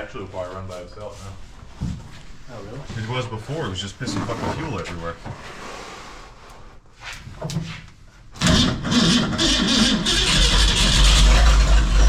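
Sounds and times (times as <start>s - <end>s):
engine starting and running: 8.4s - 12.0s.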